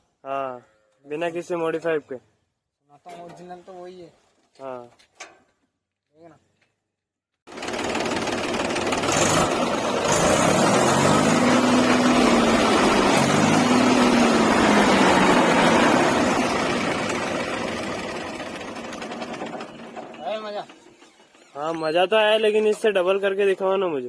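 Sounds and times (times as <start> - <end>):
tractor engine revving: 7.5 - 22.8.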